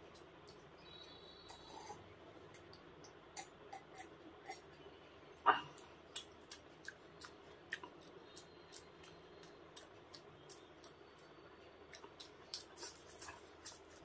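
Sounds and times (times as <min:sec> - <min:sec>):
wet chewing and lip-smacking: 0:00.0 - 0:01.8, 0:05.6 - 0:14.0.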